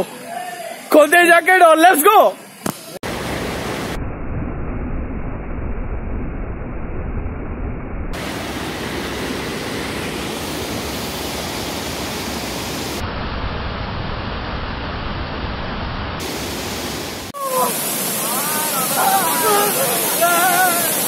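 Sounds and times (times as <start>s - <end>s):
waterfall rushing over rocks: 8.2s - 13.0s, 16.2s - 21.0s.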